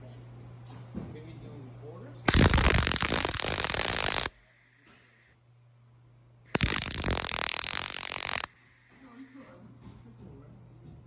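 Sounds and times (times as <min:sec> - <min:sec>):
welding arc crackling: 0:02.3 - 0:05.4, 0:06.5 - 0:09.5.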